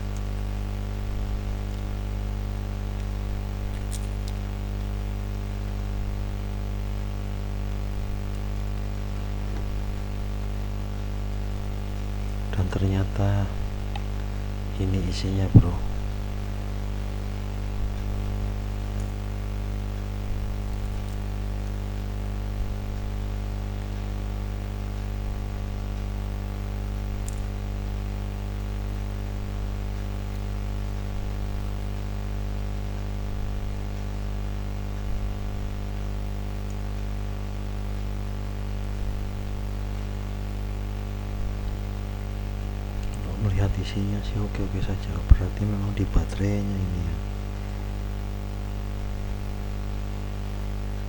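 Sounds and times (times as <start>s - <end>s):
constant hiss: 0.0s - 51.0s
electrical hum: 0.0s - 51.0s
faint small clicks: 3.0s - 4.6s, 27.1s - 27.7s.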